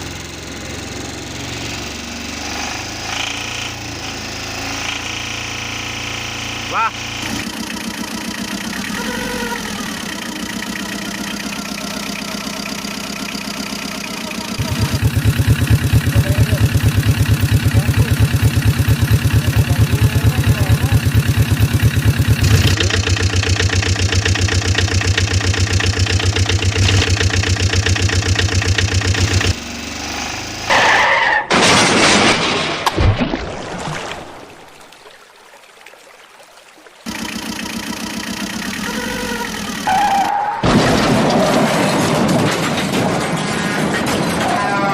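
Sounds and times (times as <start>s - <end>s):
heavy vehicle engine chugging: 0.0s - 30.7s, 37.1s - 40.3s.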